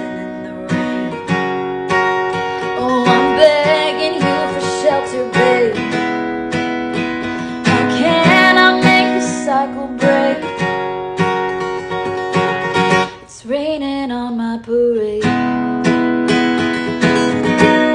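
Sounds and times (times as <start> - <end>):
woman singing: 0.0 - 1.2, 2.6 - 6.3, 7.2 - 10.9, 13.0 - 16.0
acoustic guitar strumming: 0.0 - 13.7, 14.3 - 17.9.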